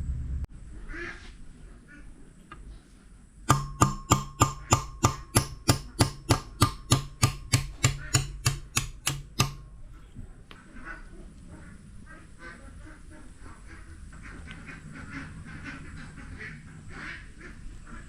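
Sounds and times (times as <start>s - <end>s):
hammer striking metal: 3.5s - 9.8s.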